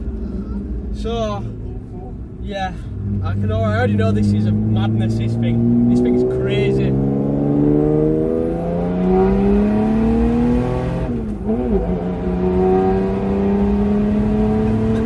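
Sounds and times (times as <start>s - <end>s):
diesel engine accelerating: 0.0s - 15.0s.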